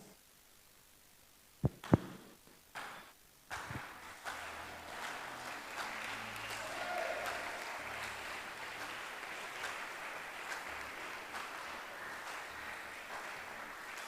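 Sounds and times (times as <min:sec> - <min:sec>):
crowd applauding: 0:02.8 - 0:14.0.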